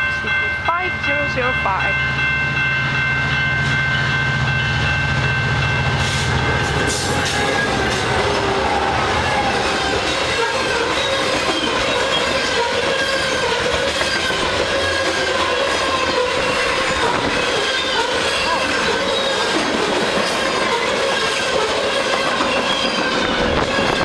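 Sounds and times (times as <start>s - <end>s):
freight train rumble and clatter: 0.0s - 24.0s
steel wheels squealing on rails: 5.8s - 24.0s.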